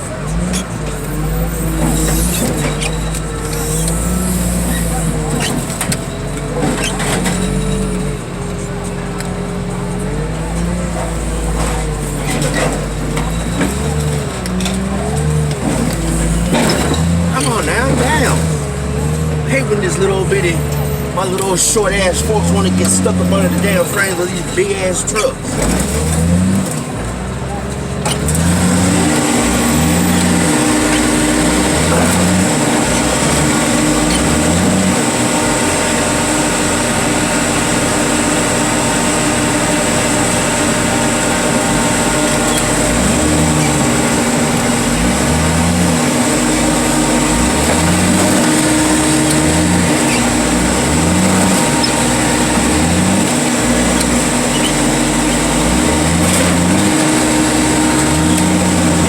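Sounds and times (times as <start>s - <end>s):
heavy machinery engine running: 0.0s - 59.0s.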